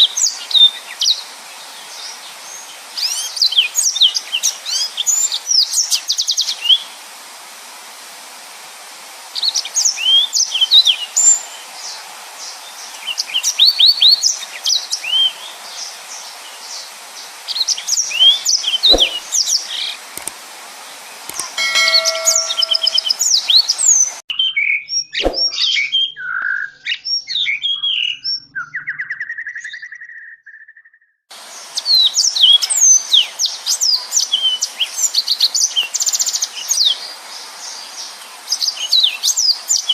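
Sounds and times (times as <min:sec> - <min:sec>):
steady hiss: 0:00.1 - 0:13.5, 0:31.3 - 0:39.8
canary singing chirps and trills: 0:21.3 - 0:23.3.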